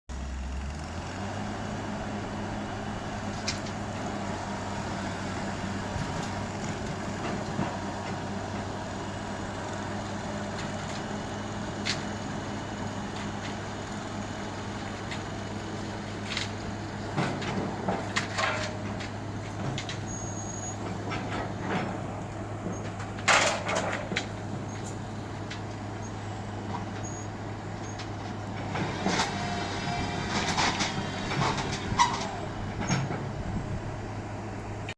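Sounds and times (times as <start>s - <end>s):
diesel engine running steadily: 0.1s - 34.9s
metal clanks: 17.2s - 25.0s.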